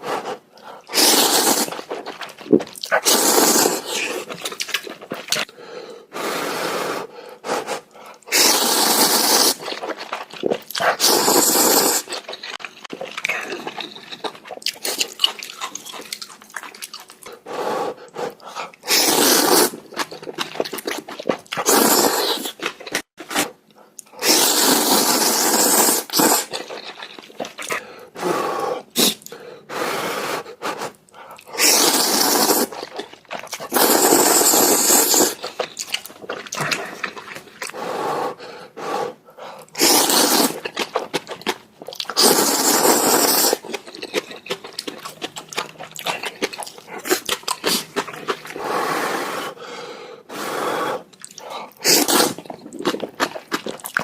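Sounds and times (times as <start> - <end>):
noodle slurping: 0.0 - 5.5, 6.2 - 54.0
chewing: 0.3 - 5.5, 7.7 - 17.4, 18.0 - 28.1, 30.7 - 37.8, 39.6 - 48.6, 51.1 - 54.0
wet mouth clicks: 30.8 - 37.8, 51.1 - 54.0.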